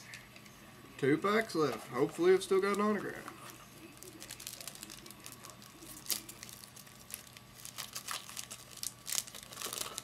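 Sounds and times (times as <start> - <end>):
foil wrapper crinkling and tearing: 3.9 - 10.0.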